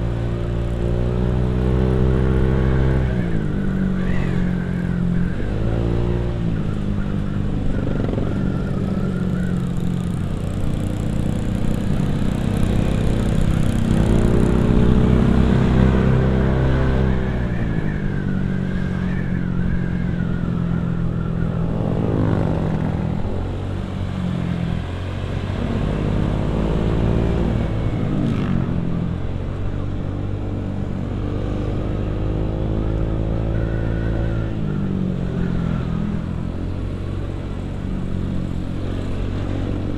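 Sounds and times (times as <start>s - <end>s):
motorcycle engine revving: 0.0s - 29.6s.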